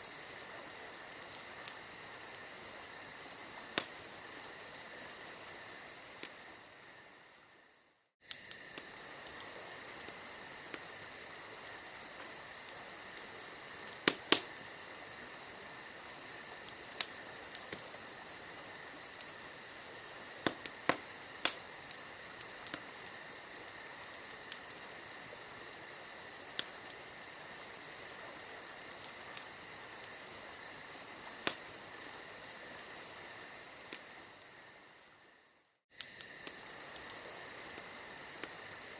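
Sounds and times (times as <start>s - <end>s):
burning wood popping: 0.0s - 7.0s, 8.2s - 34.6s, 36.0s - 38.9s
campfire crackling: 0.0s - 38.9s
crickets chirping: 0.0s - 38.9s.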